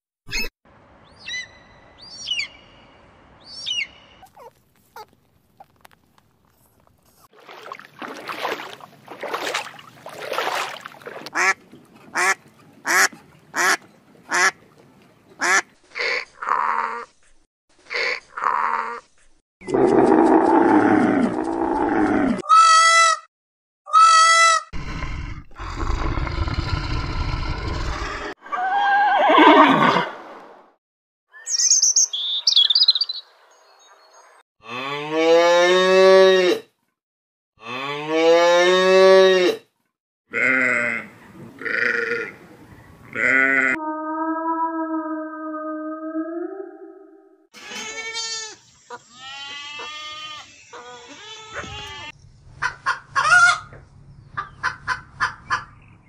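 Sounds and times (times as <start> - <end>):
farm animals calling: 40.3 - 43.8, 47.6 - 53.8.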